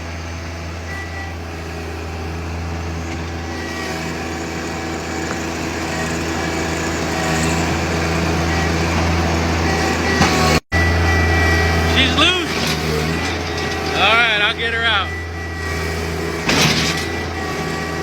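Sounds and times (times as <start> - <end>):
tractor diesel engine running: 0.0 - 18.0
backhoe ramming tree stump: 0.4 - 18.0.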